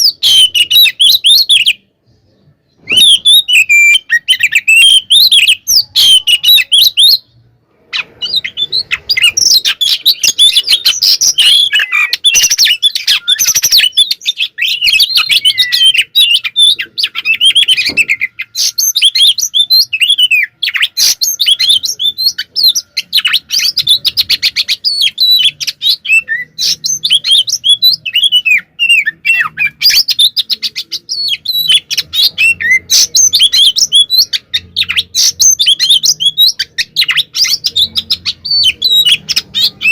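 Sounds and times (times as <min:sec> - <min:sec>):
bird song with whistles and trills: 0:00.0 - 0:39.9.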